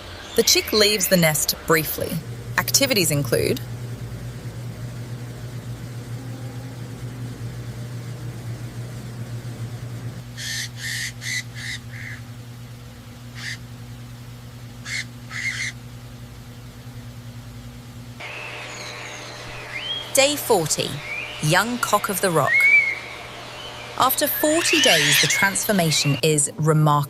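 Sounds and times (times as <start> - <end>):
steady low hum: 0.0 - 27.0
harsh bird calls: 10.3 - 12.3, 13.4 - 13.6, 14.8 - 15.8, 18.2 - 26.2.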